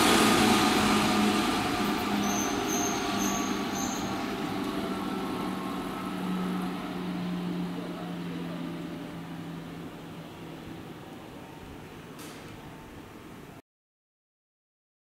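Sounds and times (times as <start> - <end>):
train wheel running noise: 0.0 - 11.4.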